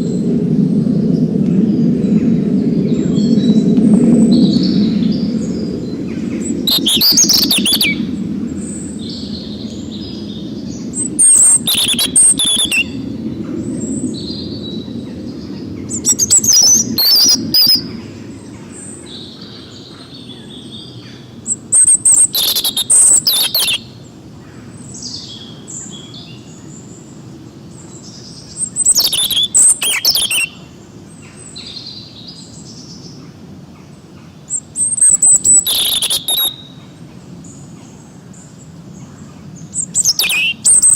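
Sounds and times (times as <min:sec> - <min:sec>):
songbirds chirping and whistling: 0:00.0 - 0:40.9
loud rapid chattering bird trill: 0:11.2 - 0:12.8, 0:22.2 - 0:23.8, 0:28.9 - 0:30.5, 0:35.0 - 0:36.6, 0:40.0 - 0:40.9.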